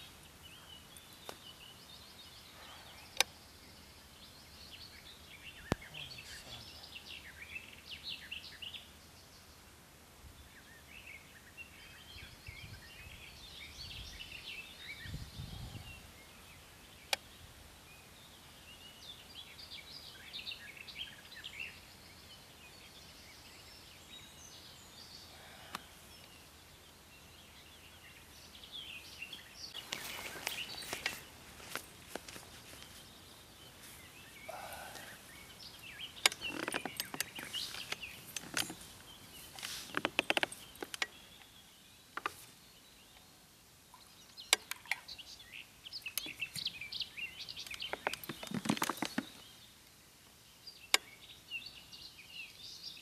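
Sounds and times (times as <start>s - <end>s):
small birds singing: 0.0s - 53.0s
rustling: 29.8s - 34.4s, 35.0s - 41.1s.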